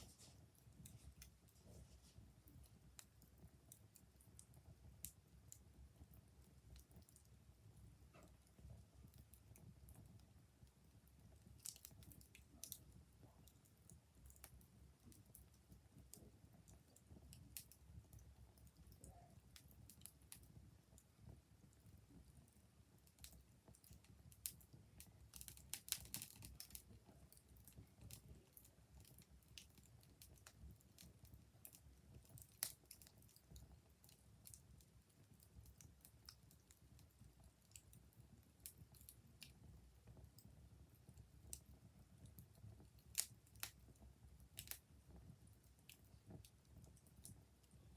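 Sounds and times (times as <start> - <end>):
wood fire crackling: 0.0 - 47.9
sharp pops and snaps: 11.5 - 17.8, 23.0 - 37.9, 42.3 - 44.9.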